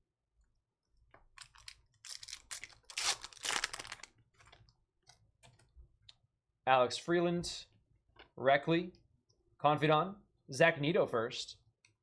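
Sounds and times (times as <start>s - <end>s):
foil pack crinkling and tearing: 1.4s - 4.6s.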